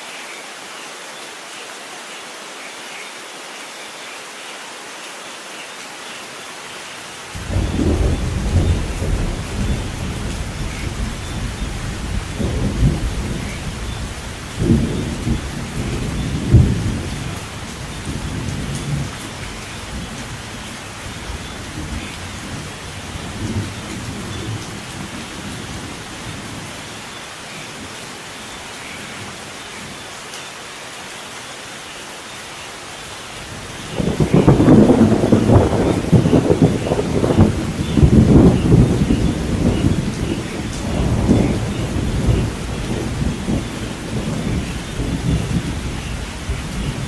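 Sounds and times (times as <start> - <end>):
steady rain: 0.0 - 47.0
rolling thunder: 7.4 - 25.8, 33.6 - 47.0.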